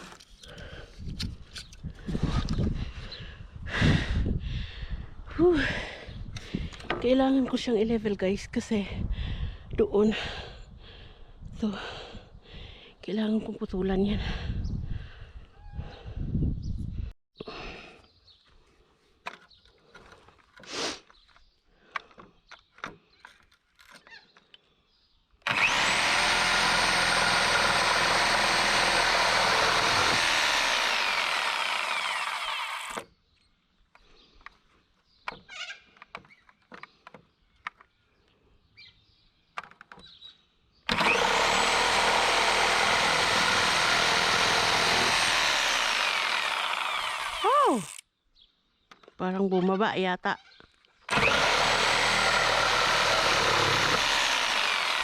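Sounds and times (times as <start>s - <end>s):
power saw cutting wood: 25.4s - 33.0s, 40.9s - 48.0s, 51.1s - 55.0s
handling knocks and clicks: 35.2s - 37.9s, 39.5s - 40.2s.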